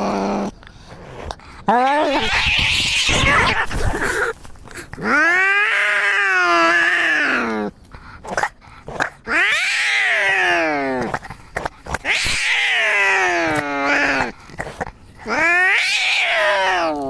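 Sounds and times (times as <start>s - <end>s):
cats yowling in a fight: 1.7s - 4.4s, 5.0s - 7.7s, 9.2s - 11.1s, 11.9s - 14.4s, 15.2s - 17.0s.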